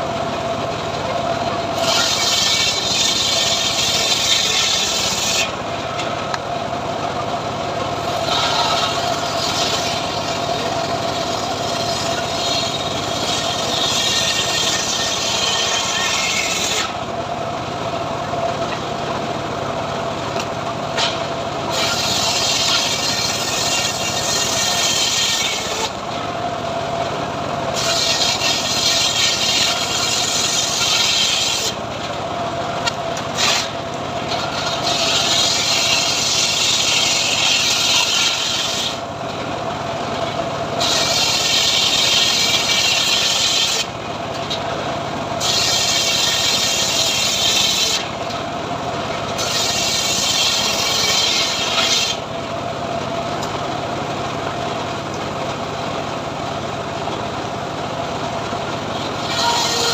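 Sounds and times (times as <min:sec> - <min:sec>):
sawmill motor hum: 0:00.0 - 0:59.9
saw blade rasping through wood: 0:01.8 - 0:05.6, 0:08.0 - 0:17.0, 0:21.0 - 0:26.0, 0:27.7 - 0:31.8, 0:32.8 - 0:39.0, 0:40.8 - 0:44.0, 0:45.4 - 0:48.2, 0:49.3 - 0:52.3, 0:58.9 - 0:59.9.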